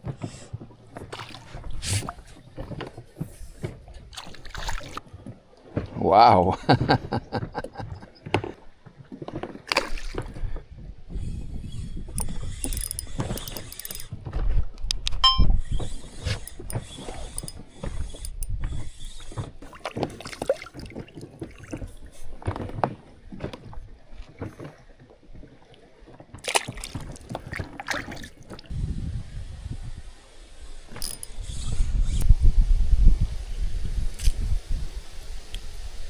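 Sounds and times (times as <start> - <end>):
wind rumble on microphone: 10.1 - 13.4, 28.7 - 36.0
knocks and clatters of handling: 12.2 - 15.2, 16.3 - 18.6, 31.0 - 31.4.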